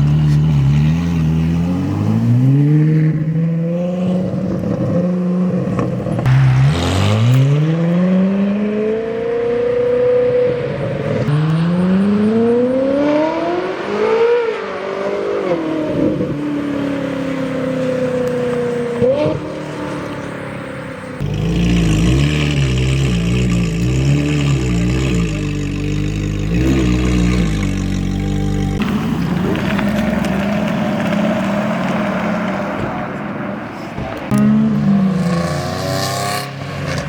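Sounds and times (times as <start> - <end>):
sports car engine revving: 21.2 - 33.2, 34.3 - 37.0.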